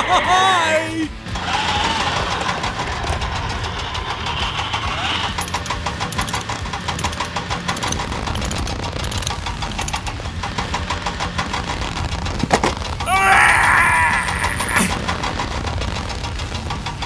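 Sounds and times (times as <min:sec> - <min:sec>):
high bending squeal: 0:00.0 - 0:12.3
vehicle engine running: 0:00.0 - 0:17.0.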